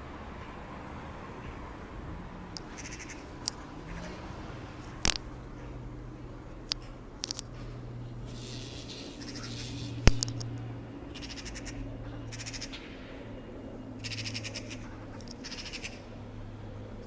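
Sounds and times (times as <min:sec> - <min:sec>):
magpies chattering: 0:02.4 - 0:05.9, 0:08.2 - 0:12.9, 0:13.9 - 0:16.2.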